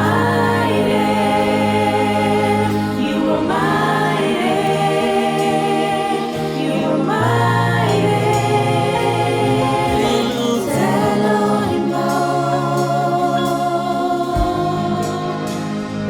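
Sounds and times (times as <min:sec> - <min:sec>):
choir singing gospel: 0:00.0 - 0:16.0
steady low bass: 0:07.1 - 0:16.0.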